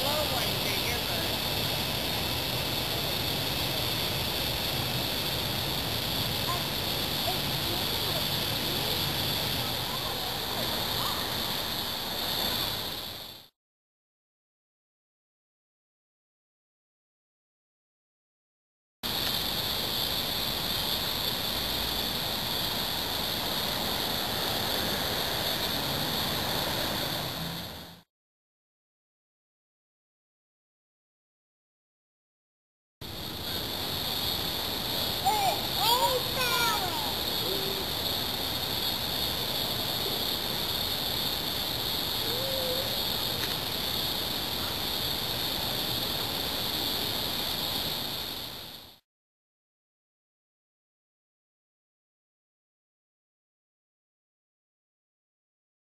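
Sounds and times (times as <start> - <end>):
insect chorus drone: 0.0 - 13.5, 19.0 - 28.1, 33.0 - 49.0.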